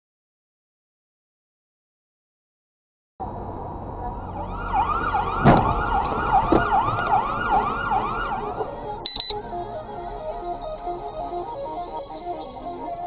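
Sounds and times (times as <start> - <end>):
emergency siren wailing: 4.0 - 13.0
sharp loud thump: 5.4 - 5.9
short high beeps: 9.0 - 9.4.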